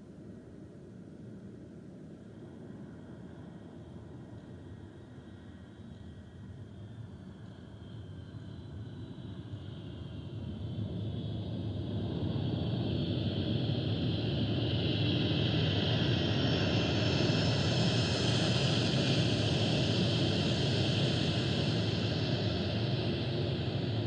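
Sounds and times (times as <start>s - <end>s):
jet engine roar with hiss: 2.2s - 24.0s.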